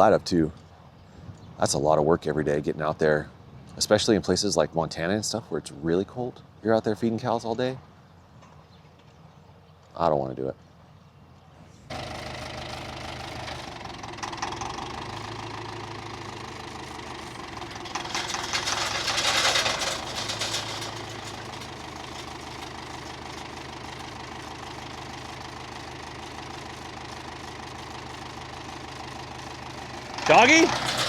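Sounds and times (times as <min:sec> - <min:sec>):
tractor engine idling: 0:11.9 - 0:31.0.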